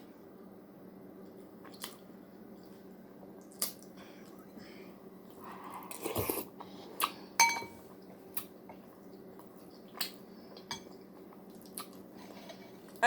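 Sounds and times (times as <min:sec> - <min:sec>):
spoon clinking against bowl: 0:07.4 - 0:07.8.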